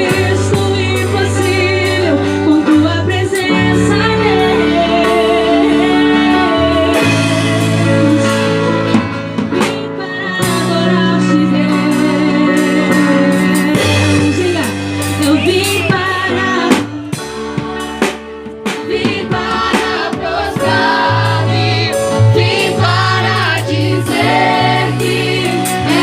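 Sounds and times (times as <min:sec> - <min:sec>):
person singing: 0:00.0 - 0:08.6
worship band music: 0:00.0 - 0:26.0.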